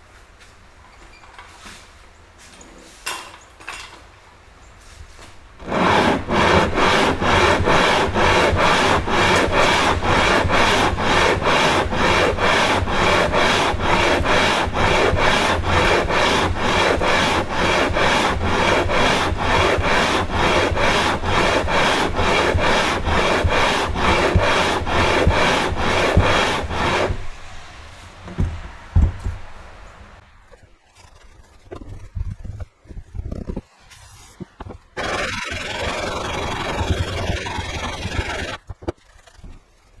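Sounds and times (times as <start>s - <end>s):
metal rasping on wet sandpaper: 5.6s - 27.4s, 35.0s - 38.6s.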